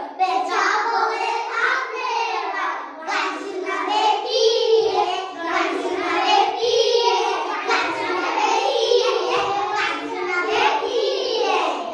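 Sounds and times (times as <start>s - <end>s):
children singing together: 0.0s - 11.9s.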